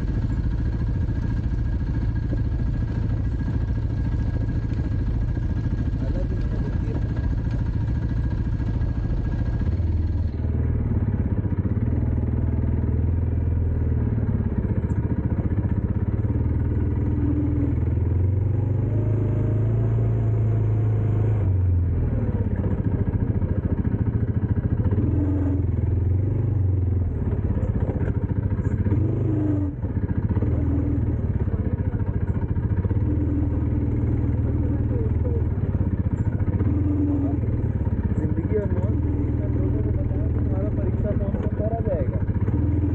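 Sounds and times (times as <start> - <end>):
dirt bike engine revving: 24.7 - 31.5, 32.8 - 42.9.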